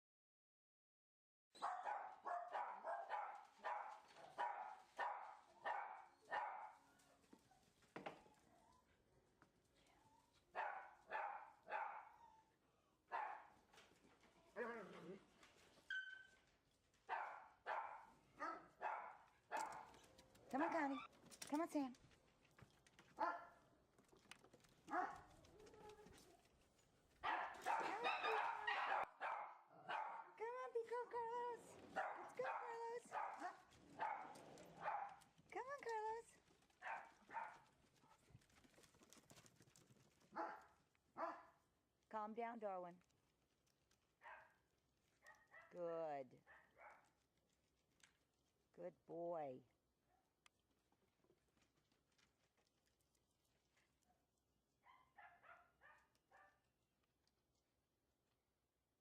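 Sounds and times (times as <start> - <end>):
dog barking: 1.6 - 6.8, 10.6 - 12.3, 13.1 - 13.6, 17.1 - 20.0, 23.2 - 23.6, 24.9 - 25.3, 27.2 - 30.4, 31.9 - 35.2, 36.8 - 37.6, 40.4 - 41.6, 44.2 - 44.6, 46.5 - 47.1, 54.8 - 56.7.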